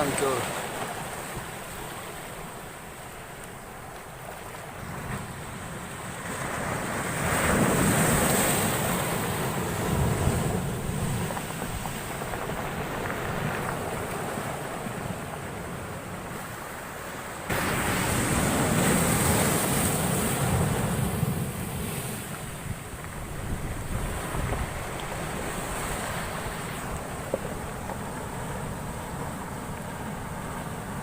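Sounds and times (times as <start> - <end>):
storm surf pounding shore: 0.0 - 3.9, 4.6 - 31.0
big wave breaking: 4.8 - 31.0
wind buffeting microphone: 17.5 - 31.0.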